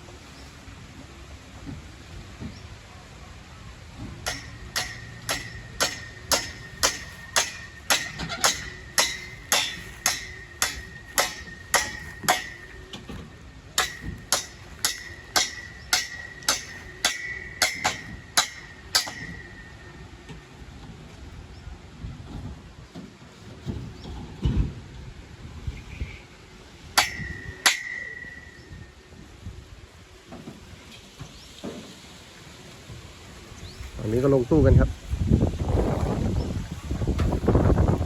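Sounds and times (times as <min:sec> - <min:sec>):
hammering on metal: 0:04.1 - 0:20.4, 0:27.0 - 0:28.9.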